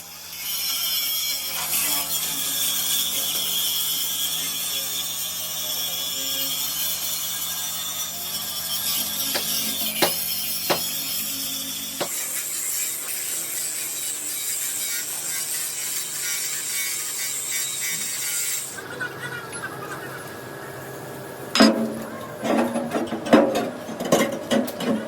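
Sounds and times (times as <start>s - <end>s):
workshop machinery humming: 0.0s - 25.0s
sharp knocks: 9.4s - 10.9s.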